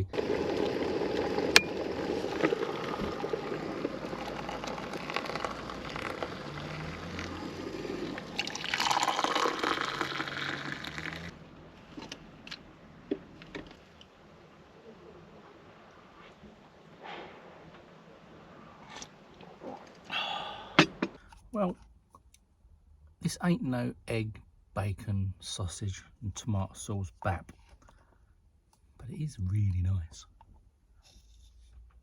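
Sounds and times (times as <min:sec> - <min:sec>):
water pouring into a pot: 0:00.1 - 0:11.4.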